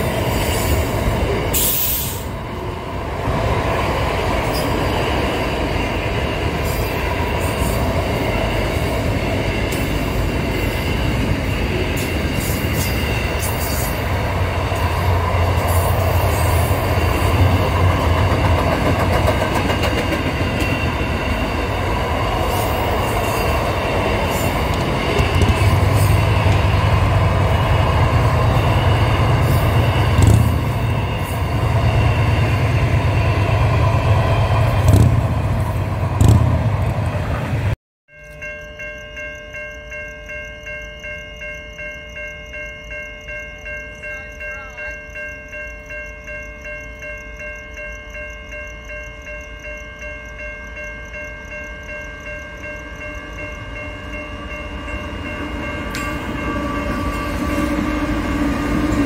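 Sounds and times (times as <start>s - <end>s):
freight train rumbling and rattling: 0.0s - 37.8s, 53.7s - 59.0s
level crossing warning bell: 38.1s - 59.0s.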